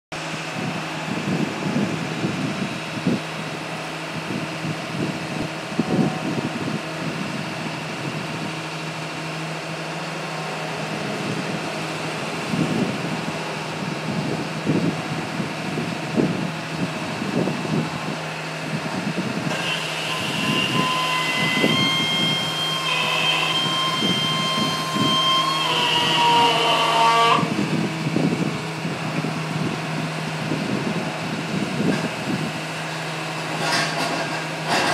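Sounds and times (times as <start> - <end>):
drill rig engine running: 0.2 - 34.9
high two-pitch whine: 17.2 - 31.2.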